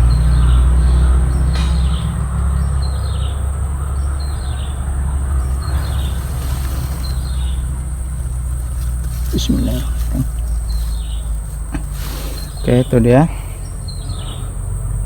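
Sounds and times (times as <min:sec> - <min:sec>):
bird falling call: 0:05.2 - 0:14.5.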